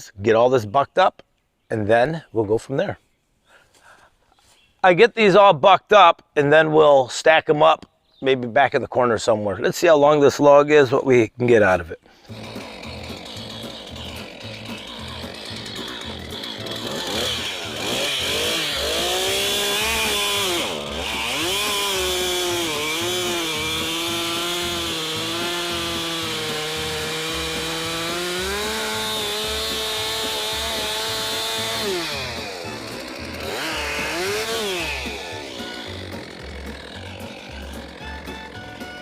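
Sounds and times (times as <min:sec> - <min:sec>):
chainsaw revving and cutting log: 0:12.1 - 0:39.0.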